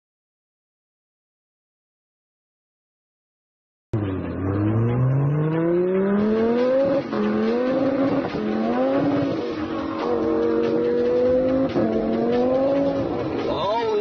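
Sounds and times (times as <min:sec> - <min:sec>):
sports car engine accelerating: 0:04.0 - 0:13.5.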